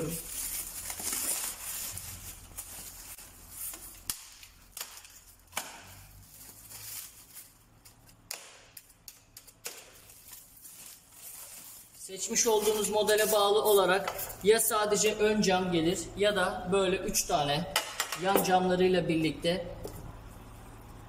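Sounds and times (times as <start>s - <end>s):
faint packaging rustling: 0.0s - 8.3s, 8.9s - 14.4s.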